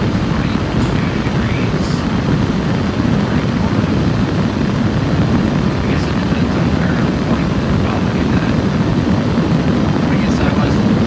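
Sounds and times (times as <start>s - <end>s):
diesel engine idling: 0.0s - 8.7s
blower rushing air: 0.0s - 11.0s.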